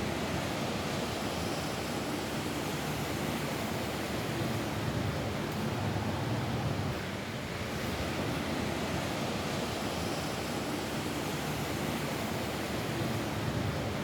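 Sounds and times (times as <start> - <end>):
rain on a roof: 0.0 - 14.0.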